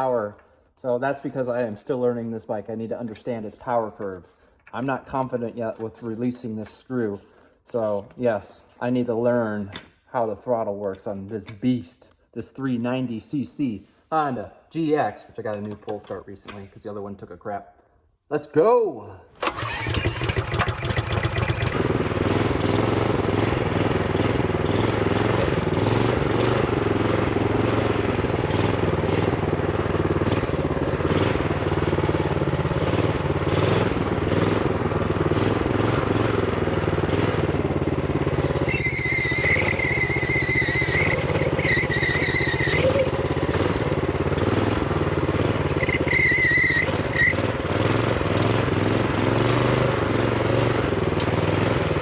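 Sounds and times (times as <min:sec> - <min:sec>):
single-cylinder engine running: 0:19.4 - 0:52.0
high squeal: 0:38.7 - 0:43.3, 0:45.8 - 0:47.4.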